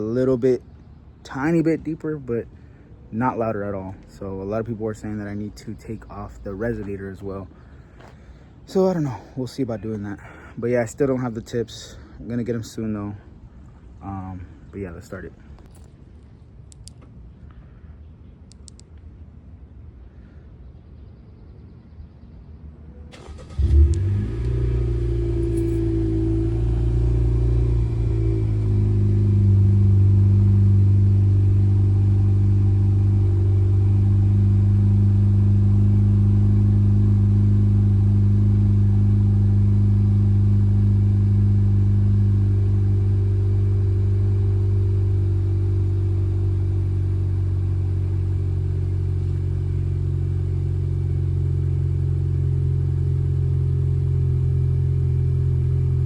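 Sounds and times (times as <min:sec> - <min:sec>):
car engine cranking: 0:23.1 - 0:48.3
car engine idling: 0:23.1 - 0:56.0
car engine revving: 0:23.1 - 0:56.0.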